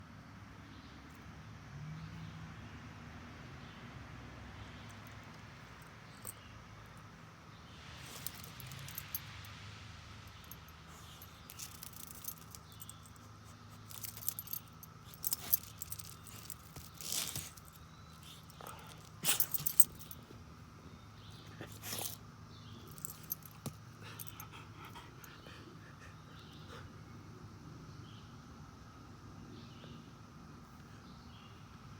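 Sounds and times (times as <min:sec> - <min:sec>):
dog collar tags jangling: 0:08.0 - 0:09.5, 0:10.2 - 0:20.4, 0:21.2 - 0:25.0.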